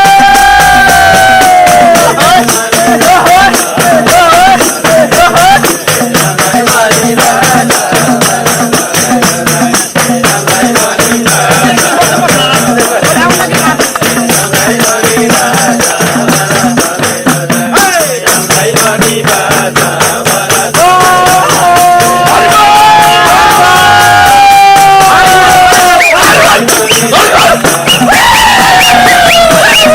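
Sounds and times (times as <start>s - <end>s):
group singing folk song: 0.0s - 29.9s
jingling percussion: 0.0s - 29.9s.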